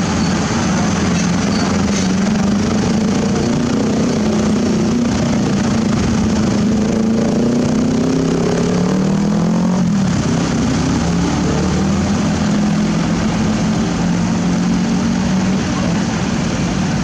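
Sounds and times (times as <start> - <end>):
excavator diesel engine running: 0.0 - 8.7.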